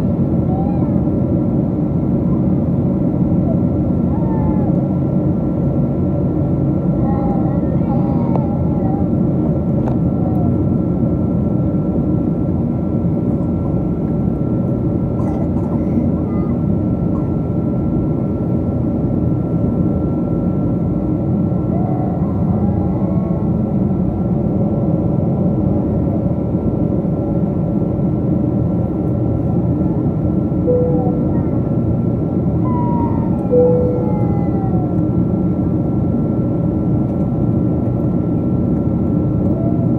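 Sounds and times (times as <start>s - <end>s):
airliner cabin rumble: 0.0s - 39.9s
faint passenger voices: 0.2s - 1.2s, 6.5s - 10.8s, 13.0s - 18.6s, 21.4s - 26.7s, 28.1s - 36.1s
thin high whine: 30.6s - 35.2s.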